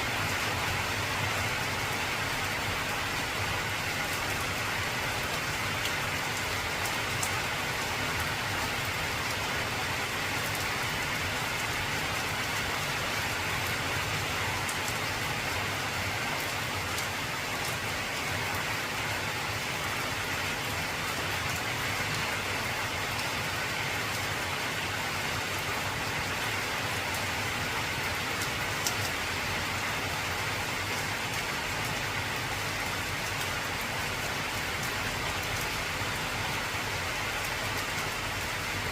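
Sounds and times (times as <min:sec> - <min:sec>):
heavy rain on a metal roof: 0:00.0 - 0:38.9
sharp raindrop ticks: 0:28.4 - 0:29.2.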